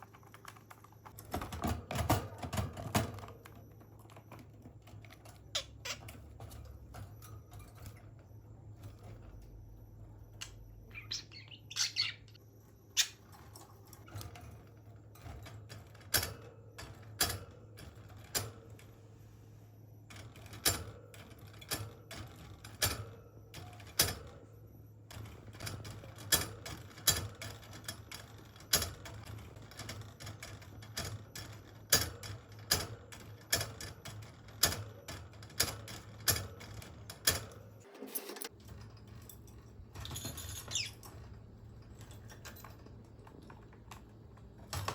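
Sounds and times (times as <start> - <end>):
budgerigar chirp: 10.9 - 12.4.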